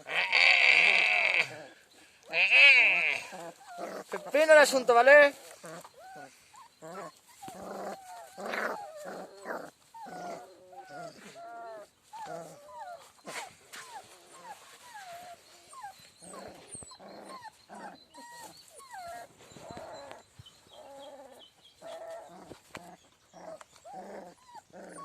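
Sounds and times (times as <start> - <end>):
puppies whining and yelping: 3.2 - 25.0.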